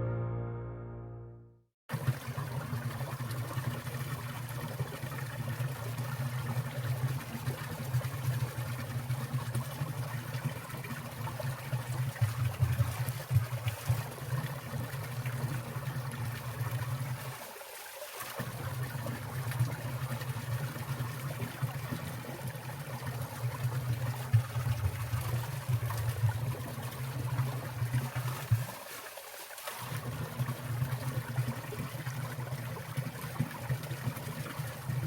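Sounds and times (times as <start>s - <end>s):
piano tune: 0.0s - 1.7s
stream splashing over rocks: 1.9s - 35.0s.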